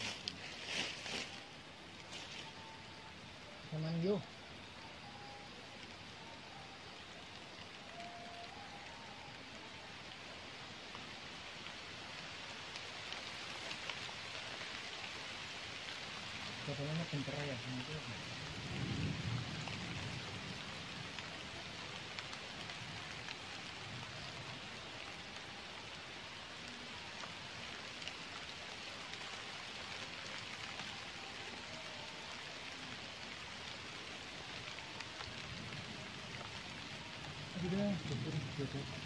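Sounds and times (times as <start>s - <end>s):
small stream: 0.0s - 18.6s, 19.6s - 39.0s
rain falling on leaves: 0.0s - 39.0s.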